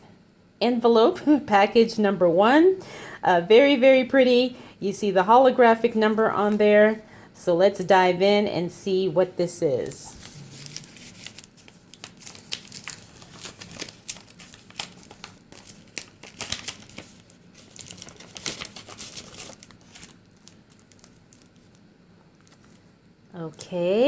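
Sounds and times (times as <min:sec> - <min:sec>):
packaging torn and crinkled: 0:10.1 - 0:21.8, 0:22.4 - 0:22.9.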